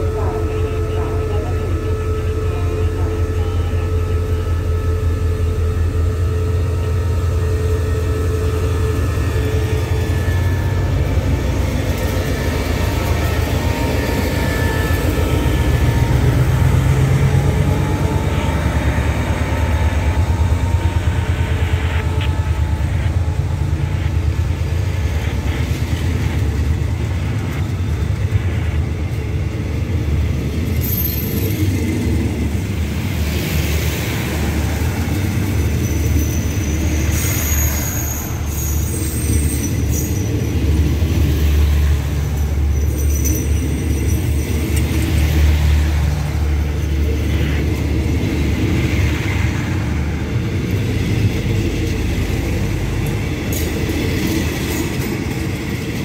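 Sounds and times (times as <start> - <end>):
train rumbling along rails: 0.0 - 56.0
faint high squeals: 35.6 - 40.8.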